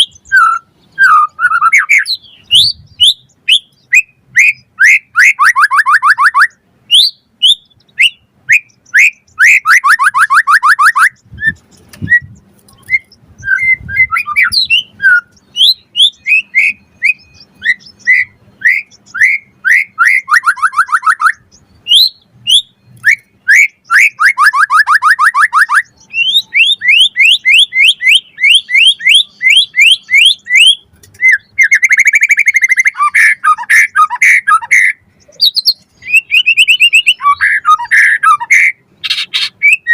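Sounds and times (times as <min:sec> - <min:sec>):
songbird singing chirps and trills: 0:00.0 - 0:39.9.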